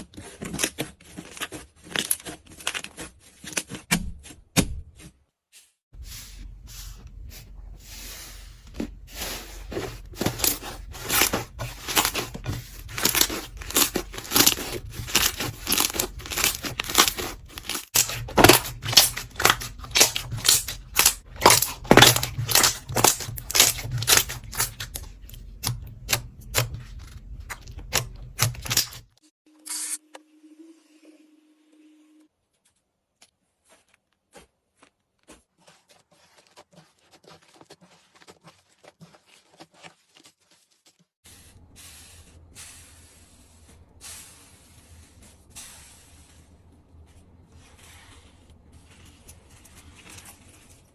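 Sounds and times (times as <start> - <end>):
slime crackling and popping: 13.0 - 26.6.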